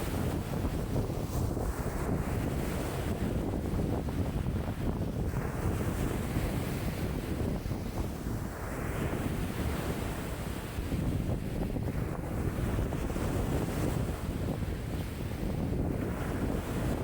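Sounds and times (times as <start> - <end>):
lake waves washing against shore: 0.0 - 17.0
wind buffeting microphone: 0.0 - 17.0.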